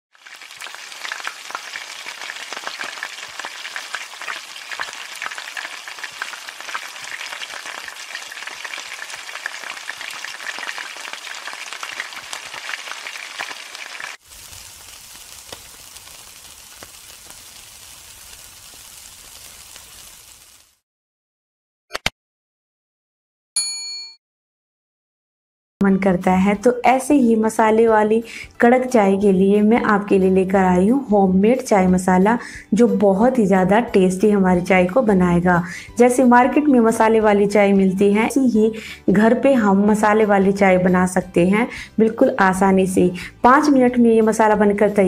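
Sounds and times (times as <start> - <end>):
food frying in hot oil: 0.1 - 20.8.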